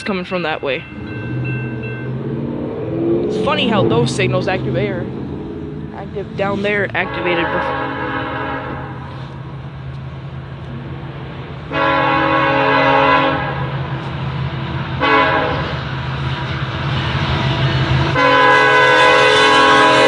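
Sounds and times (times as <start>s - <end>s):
diesel locomotive engine droning: 0.0s - 20.0s
train air horn blasts: 7.0s - 9.4s, 11.7s - 13.8s, 15.0s - 15.8s, 18.1s - 20.0s.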